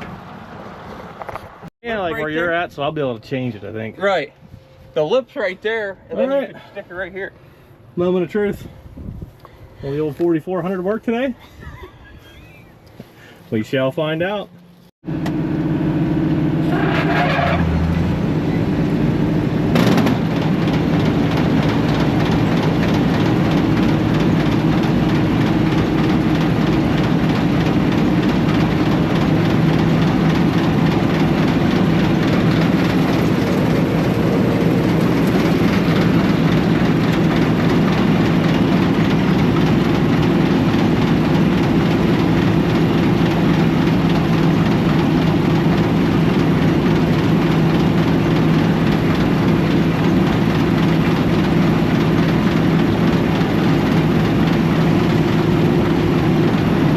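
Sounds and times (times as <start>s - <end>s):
combine engine running: 15.1s - 56.9s.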